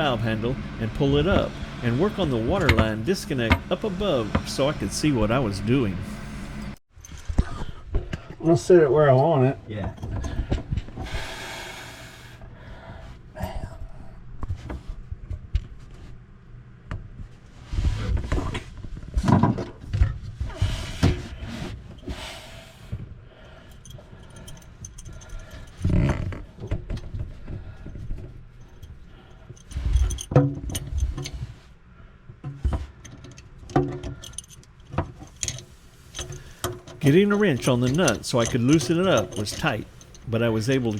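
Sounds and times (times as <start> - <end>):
wrench and metal fittings clinking: 35.3 - 40.9.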